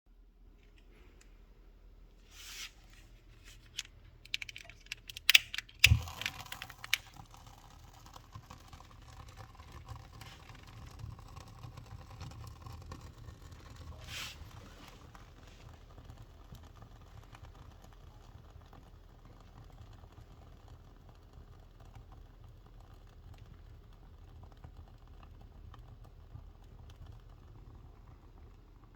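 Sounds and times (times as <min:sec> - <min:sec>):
fire crackling with pops: 0:03.6 - 0:28.9
sharp clicks: 0:03.7 - 0:07.1
fire hissing: 0:13.9 - 0:15.0.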